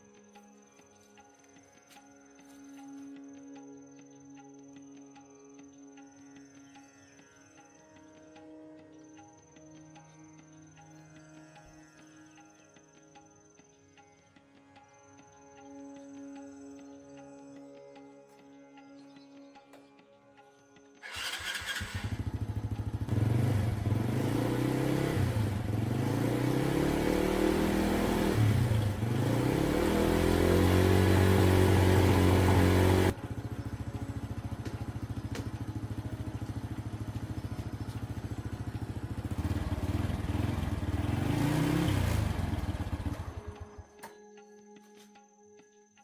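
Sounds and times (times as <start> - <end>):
motorcycle engine revving: 21.0 - 44.1.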